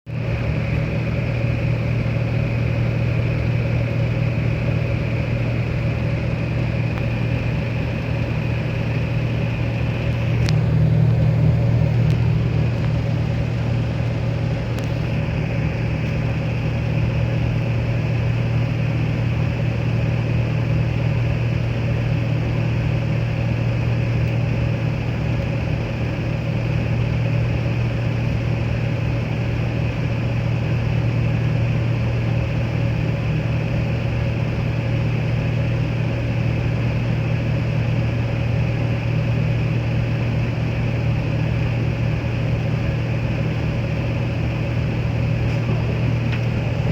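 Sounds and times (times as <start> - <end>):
bus engine humming: 0.2 - 46.9.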